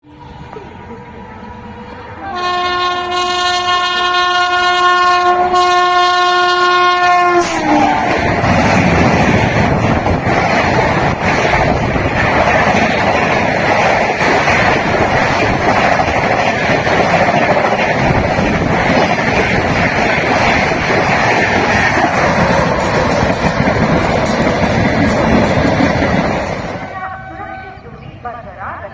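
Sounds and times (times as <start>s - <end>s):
train rushing past: 0.0s - 28.8s
locomotive horn: 2.2s - 8.2s.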